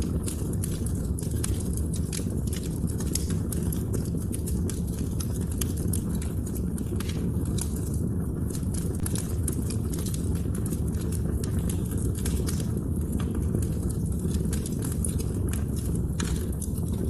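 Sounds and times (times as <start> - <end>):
fire crackling and popping: 0.0 - 17.0
wood fire rumbling: 0.0 - 17.0.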